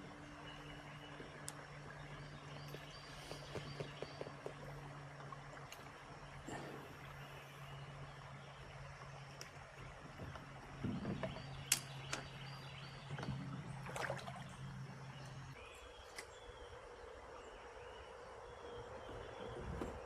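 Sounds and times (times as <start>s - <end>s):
clicks and knocks in a boat: 0.1s - 7.1s, 9.2s - 16.3s.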